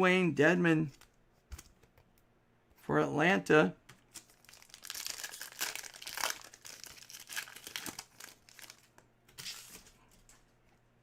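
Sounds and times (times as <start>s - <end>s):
plastic wrapping crinkling: 4.1s - 10.4s.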